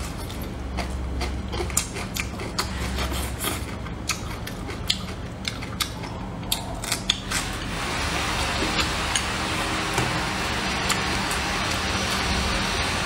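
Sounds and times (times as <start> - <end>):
person chewing crunchy cabbage: 0.0 - 9.5.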